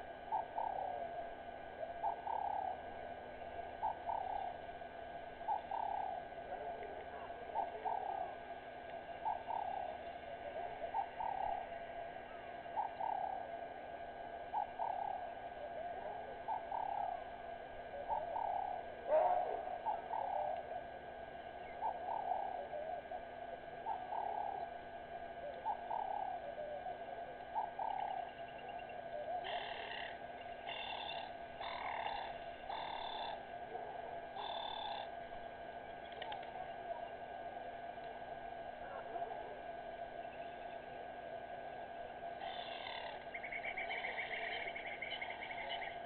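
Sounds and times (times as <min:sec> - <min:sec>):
birds calling in chorus: 0:00.0 - 0:04.7, 0:05.4 - 0:13.5, 0:14.5 - 0:20.7, 0:21.3 - 0:24.8, 0:25.4 - 0:35.2, 0:41.7 - 0:46.0
high bird chirps: 0:29.5 - 0:33.4.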